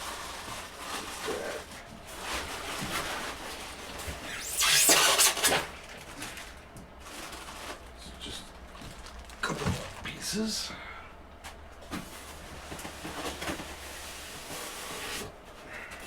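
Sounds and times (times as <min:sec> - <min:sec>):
packing material rustling: 0:00.0 - 0:07.9.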